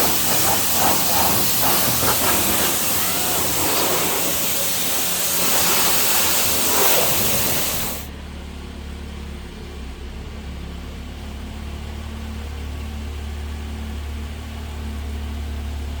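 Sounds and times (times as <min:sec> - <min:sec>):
high-pressure jet hissing: 0:00.0 - 0:08.1
car engine idling: 0:00.0 - 0:14.1.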